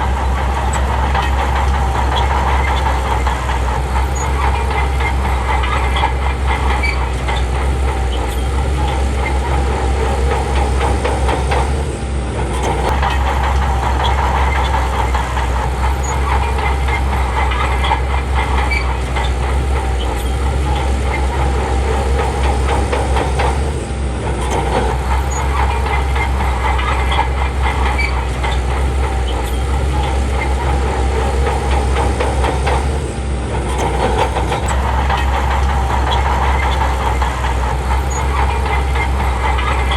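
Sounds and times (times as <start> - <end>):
bulldozer diesel engine: 0.0 - 39.9
steel tracks clanking: 0.0 - 39.9.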